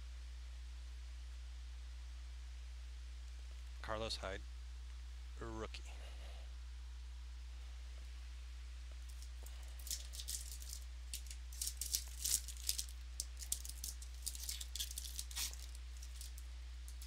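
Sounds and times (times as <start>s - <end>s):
trading cards rustling and snapping: 9.1s - 17.0s.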